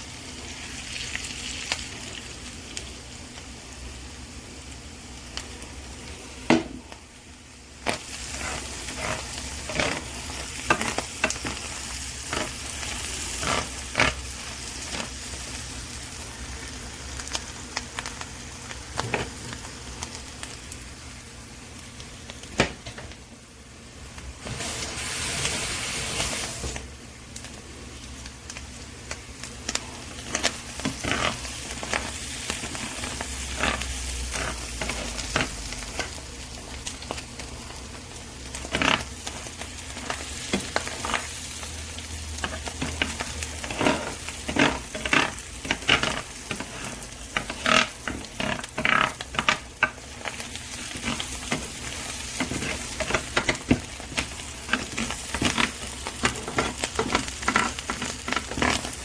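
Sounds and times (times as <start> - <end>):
food sizzling in a grill pan: 0.0 - 59.0
utensil scraping and tapping pan: 42.4 - 50.0.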